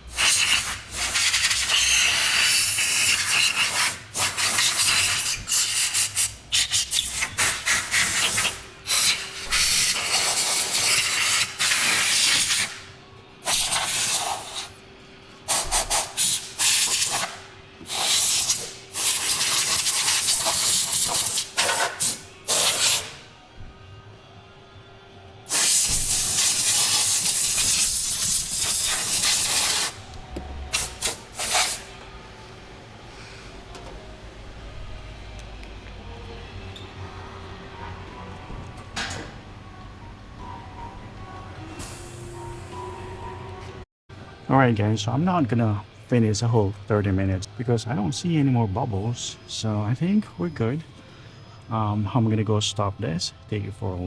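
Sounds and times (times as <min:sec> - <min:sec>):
hissing nozzle spray: 0:25.5 - 0:30.0, 0:30.7 - 0:31.9.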